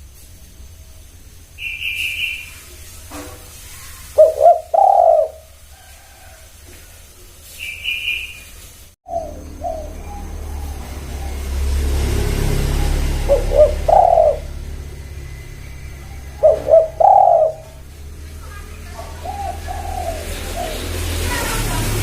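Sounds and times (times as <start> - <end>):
dove cooing: 4.1 - 6.4, 9.1 - 21.6.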